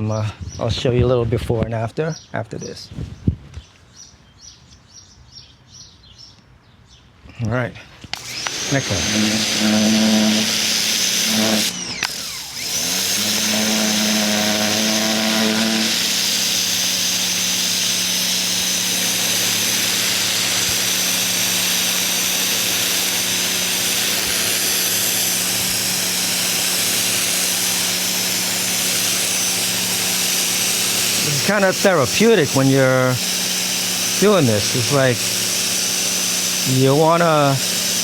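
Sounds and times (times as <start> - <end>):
pressure washer motor humming: 8.1 - 38.0
high-pressure water spray hissing: 24.0 - 38.0.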